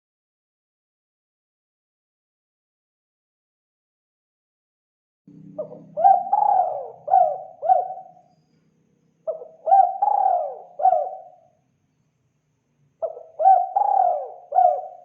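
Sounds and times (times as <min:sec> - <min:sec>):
dove cooing: 0:05.4 - 0:08.2, 0:09.3 - 0:11.4, 0:13.0 - 0:15.0.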